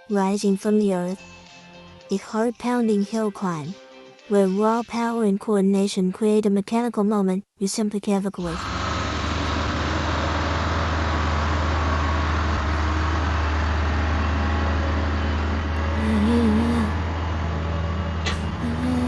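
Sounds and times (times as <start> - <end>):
diesel machinery engines drone: 8.4 - 19.0
wavering whine: 8.6 - 19.0.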